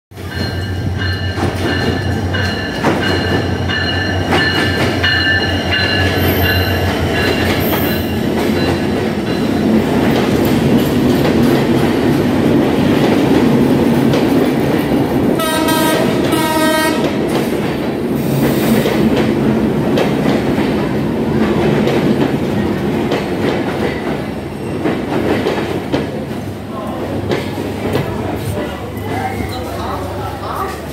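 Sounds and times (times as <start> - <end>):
train wheels clattering on rails: 0.2 - 30.9
train horn blasts: 15.4 - 17.2.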